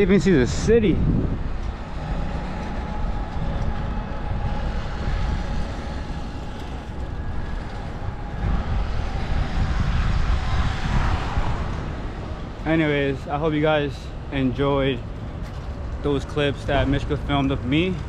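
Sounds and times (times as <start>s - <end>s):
city street traffic noise: 0.0s - 18.0s.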